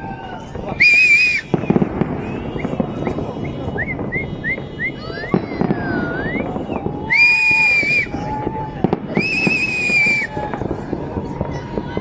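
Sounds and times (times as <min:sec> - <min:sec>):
fireworks booming and crackling: 0:00.0 - 0:12.0
long gliding firework whistle: 0:00.0 - 0:12.0
short rising firework whistles: 0:00.8 - 0:08.5, 0:09.1 - 0:10.7.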